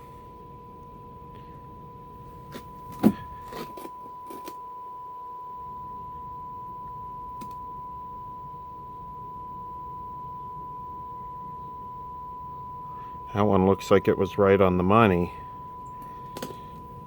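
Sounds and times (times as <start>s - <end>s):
high test tone from radio speaker: 0.0s - 17.0s
handling clicks and knock: 16.3s - 16.6s.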